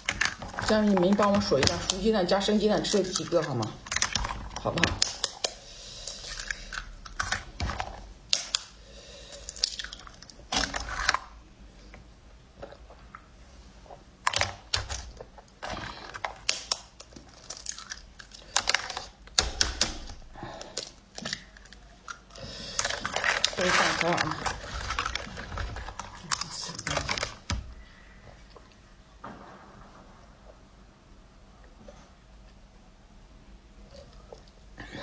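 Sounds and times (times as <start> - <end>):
chewing with wet mouth clicks: 0.0 - 10.5, 15.1 - 19.4, 20.6 - 23.7.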